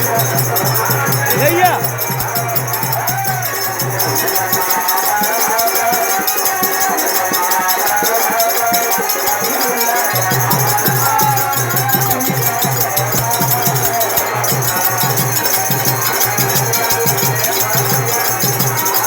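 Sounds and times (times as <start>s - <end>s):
low drum beat: 0.0s - 4.6s, 10.1s - 18.9s
rattling shaker percussion: 0.0s - 19.0s
wavering instrumental melody: 0.0s - 19.0s.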